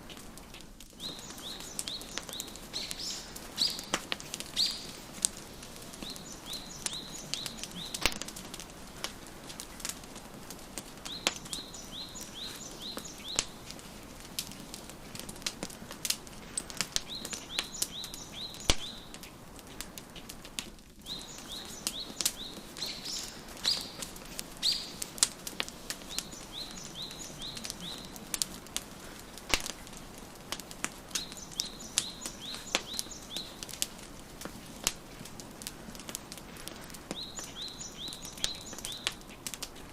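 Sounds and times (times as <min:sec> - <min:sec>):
wood fire crackling and popping: 0:00.0 - 0:39.9
songbird singing: 0:00.9 - 0:13.8, 0:16.6 - 0:19.4, 0:21.0 - 0:33.9, 0:37.0 - 0:39.8.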